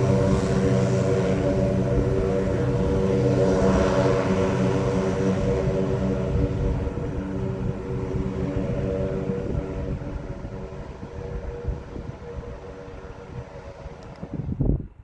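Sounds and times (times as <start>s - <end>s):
propeller aircraft engines droning: 0.0s - 15.0s
wind gust on microphone: 0.0s - 15.0s.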